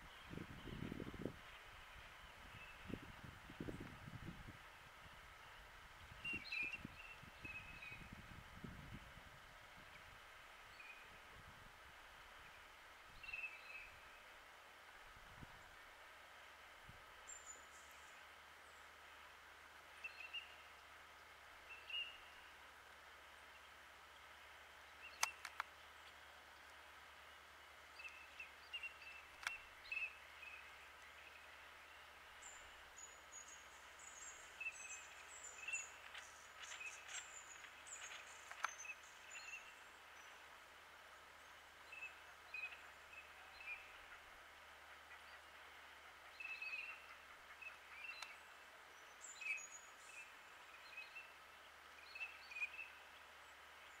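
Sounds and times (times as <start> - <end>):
quiet steady hiss: 0.0 - 54.0
sharp clicks: 25.1 - 25.8, 29.3 - 29.6, 38.4 - 38.8
bird chirps and twittering: 28.0 - 40.4.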